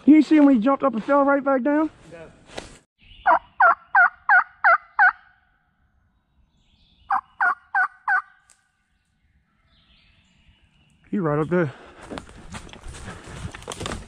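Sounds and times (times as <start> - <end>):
turkey yelping: 3.2 - 5.3, 7.1 - 8.3.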